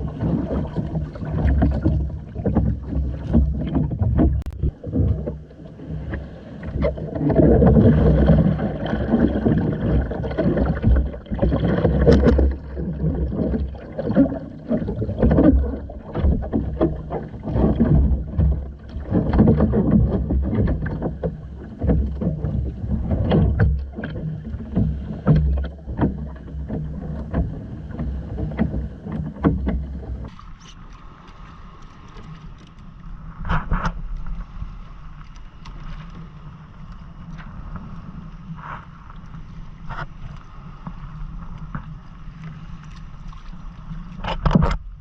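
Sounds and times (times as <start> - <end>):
water slapping against hull: 0.0 - 45.0
sharp knocks and clicks: 44.2 - 44.9.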